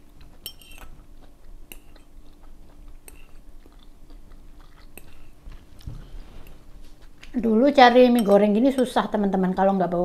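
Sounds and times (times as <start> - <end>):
person chewing noodles: 0.0 - 7.4
fork clicking against bowl: 1.7 - 2.1, 3.0 - 3.4.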